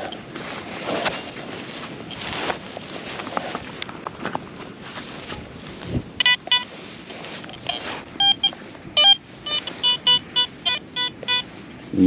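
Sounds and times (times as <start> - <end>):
metal detector beeps: 6.2 - 6.7, 7.5 - 11.5.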